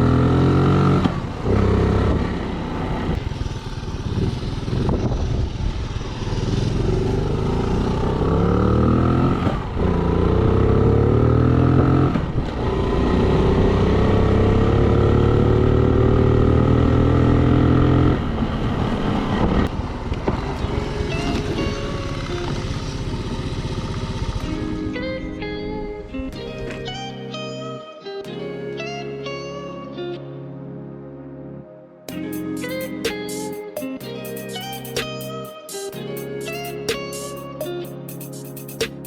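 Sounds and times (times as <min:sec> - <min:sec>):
motorcycle engine accelerating: 0:00.0 - 0:25.1.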